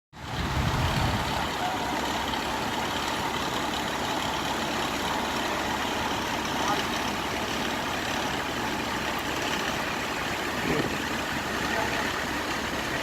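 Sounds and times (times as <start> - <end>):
freeway traffic noise: 0.1 - 13.0
heavy low rumble: 0.2 - 2.9.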